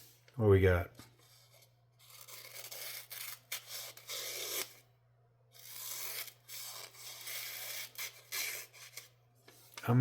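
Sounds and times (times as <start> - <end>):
knife slicing through paper: 2.0 - 4.8.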